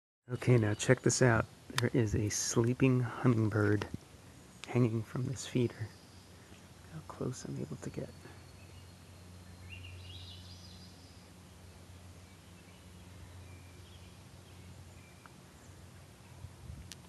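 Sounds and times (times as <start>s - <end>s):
low steady hum: 0.3s - 17.0s
bird calling: 4.3s - 11.4s.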